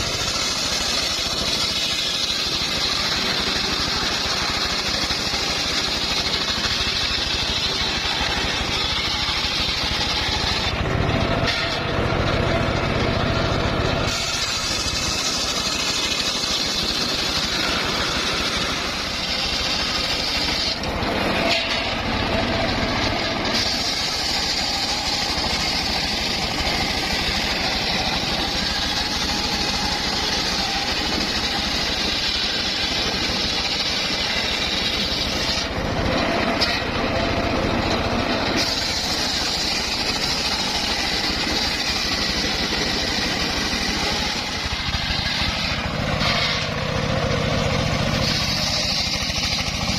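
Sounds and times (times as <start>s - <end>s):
saw cutting wood: 0.0s - 49.9s
sawmill mechanical drone: 0.0s - 49.9s.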